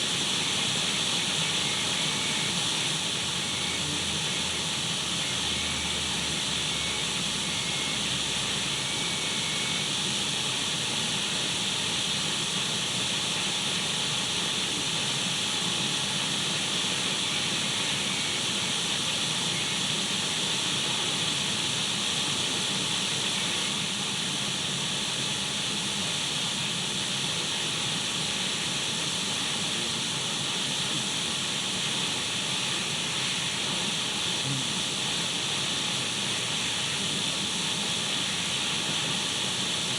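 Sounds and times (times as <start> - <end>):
radio static hiss: 0.4 - 8.0, 28.6 - 39.9.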